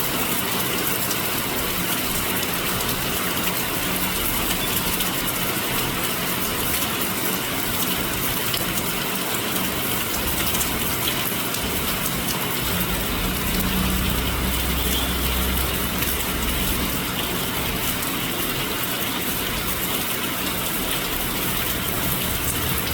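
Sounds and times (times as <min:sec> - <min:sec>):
heavy rain pouring: 0:00.0 - 0:22.9
vehicle engine rumble: 0:11.7 - 0:18.7.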